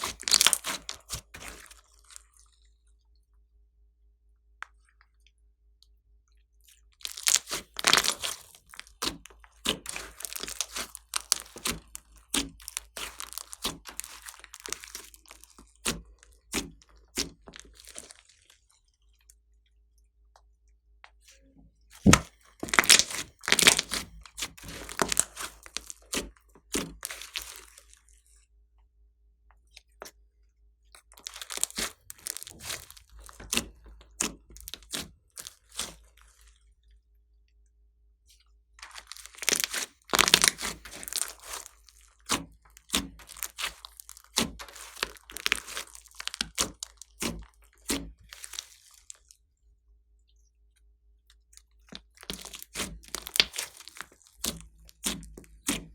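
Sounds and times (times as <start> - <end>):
slime crackling and popping: 0.0 - 2.1, 7.0 - 18.6, 22.0 - 27.9, 31.1 - 36.1, 38.8 - 49.3, 51.8 - 55.9.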